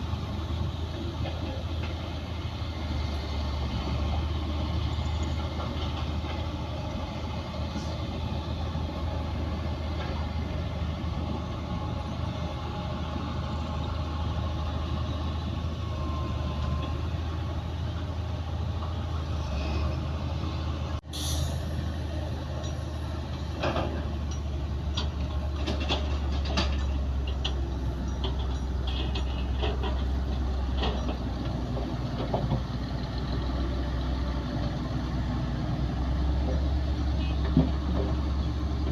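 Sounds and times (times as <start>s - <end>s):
diesel earthmoving machinery rumbling: 0.0s - 38.9s
metallic clanks and knocks: 22.6s - 32.7s.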